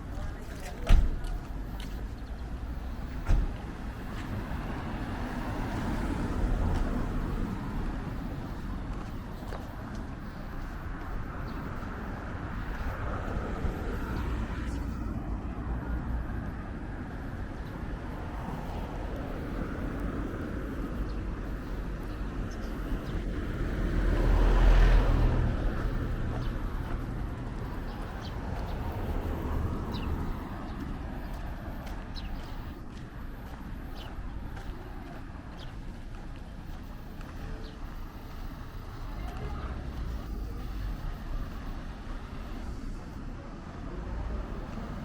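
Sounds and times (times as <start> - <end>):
low traffic rumble: 0.0 - 45.0
vehicle passing close by: 2.6 - 42.8.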